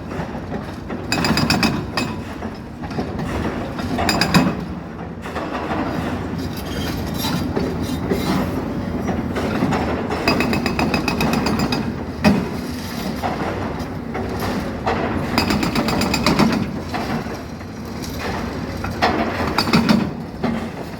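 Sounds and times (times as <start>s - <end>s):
hydraulic breaker hammering: 9.6s - 12.6s, 14.9s - 17.2s.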